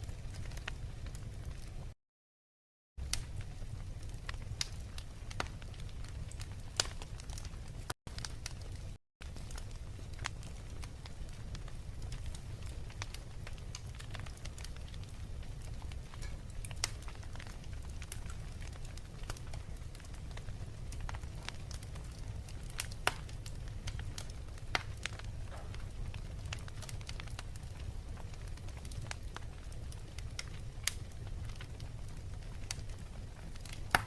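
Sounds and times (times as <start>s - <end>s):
wood fire crackling and popping: 0.0s - 2.0s, 3.0s - 34.0s.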